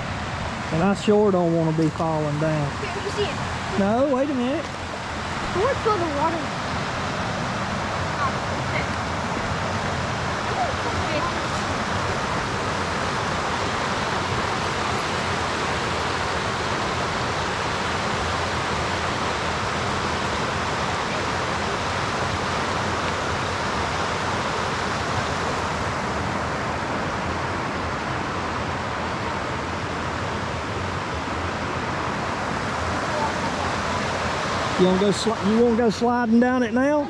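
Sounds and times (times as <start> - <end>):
river water rushing: 0.0 - 37.0.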